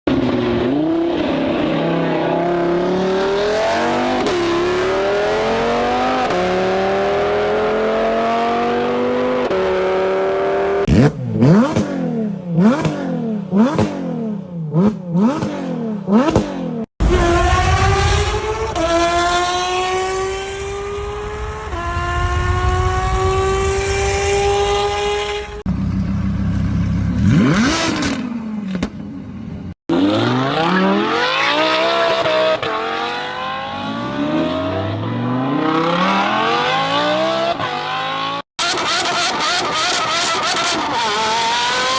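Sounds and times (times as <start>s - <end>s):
sports car accelerating: 0.1s - 28.7s, 29.9s - 41.9s
car engine revving: 0.1s - 28.8s, 29.9s - 41.9s.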